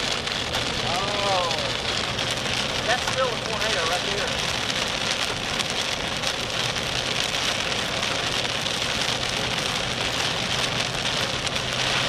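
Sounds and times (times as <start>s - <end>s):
rain and wet road hiss: 0.0s - 12.0s.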